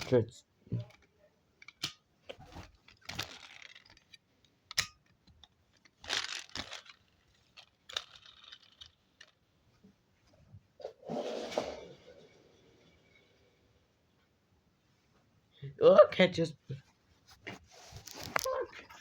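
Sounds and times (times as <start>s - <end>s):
plastic toy trucks rustling: 0.0s - 9.6s, 17.3s - 19.0s.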